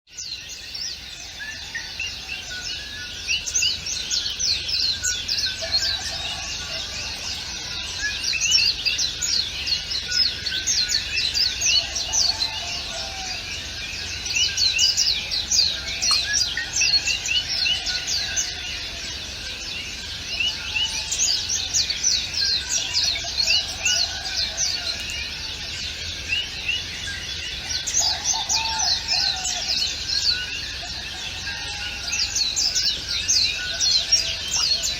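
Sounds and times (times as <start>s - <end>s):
chorus of small birds chirping: 0.1s - 34.9s.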